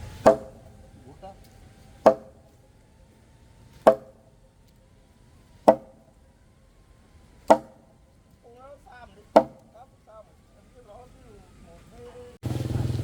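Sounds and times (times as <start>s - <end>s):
hand tool striking wood: 0.0s - 2.6s, 3.7s - 4.4s, 5.6s - 6.2s, 7.4s - 8.0s, 9.3s - 9.9s.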